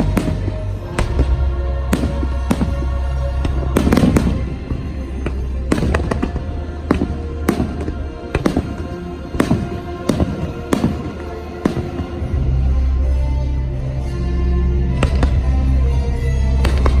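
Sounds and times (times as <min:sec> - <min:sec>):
fireworks bangs and cracks: 0:00.0 - 0:12.4, 0:16.7 - 0:17.0
music over loudspeakers: 0:00.0 - 0:17.0.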